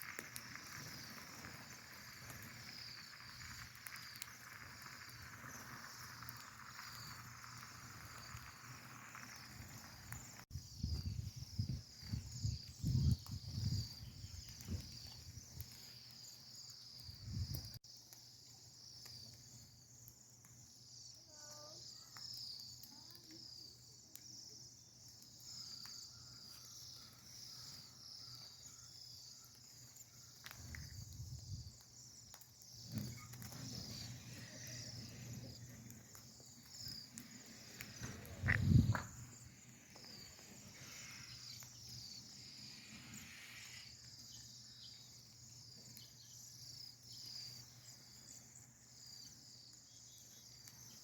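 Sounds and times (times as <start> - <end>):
flock of small birds chirping: 0.0 - 17.8, 20.9 - 51.0
handling or wind rumble: 32.8 - 43.9.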